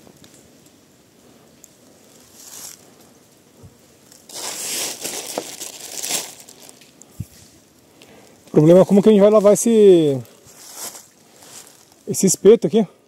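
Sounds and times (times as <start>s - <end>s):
crinkling and rustling: 1.5s - 12.1s.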